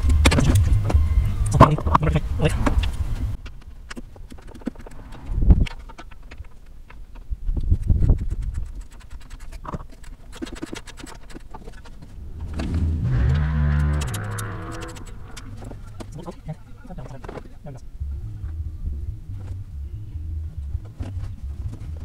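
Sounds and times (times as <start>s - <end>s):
hand tools clicking and knocking: 5.6s - 12.7s
cow mooing: 12.9s - 15.6s.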